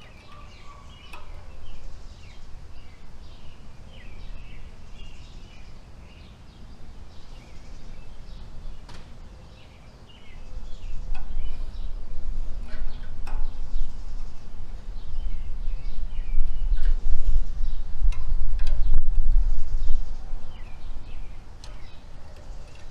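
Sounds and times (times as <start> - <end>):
songbirds chirping: 0.0 - 22.9
light knocks: 8.8 - 9.2
loud low rumble: 10.4 - 21.5.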